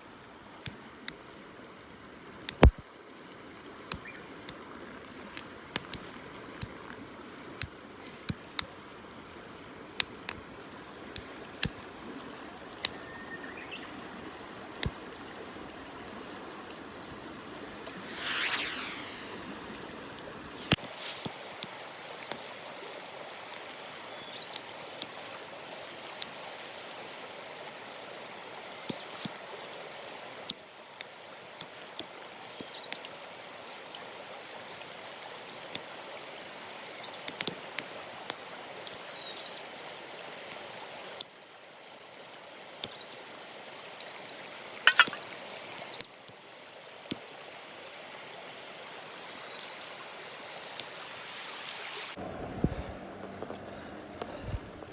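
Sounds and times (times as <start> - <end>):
running water: 0.0 - 54.9
whoosh: 17.9 - 19.9
sharp clicks and ticks: 44.9 - 45.2.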